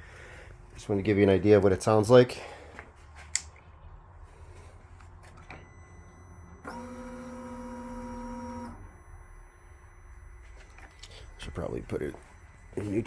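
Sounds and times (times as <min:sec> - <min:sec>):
fuel pump electric whine: 0:05.4 - 0:13.0.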